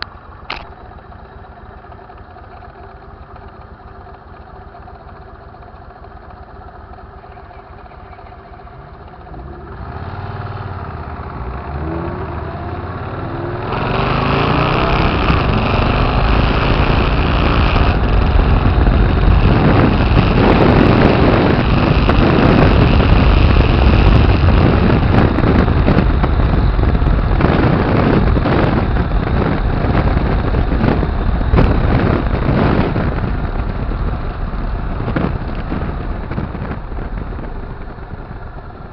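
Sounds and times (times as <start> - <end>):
motorcycle engine revving: 1.5 - 38.9
wind noise on microphone: 9.3 - 38.9.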